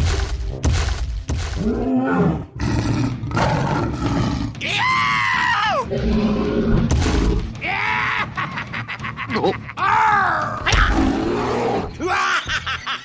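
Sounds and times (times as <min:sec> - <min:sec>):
animal growls: 0:01.6 - 0:04.6, 0:05.9 - 0:07.4.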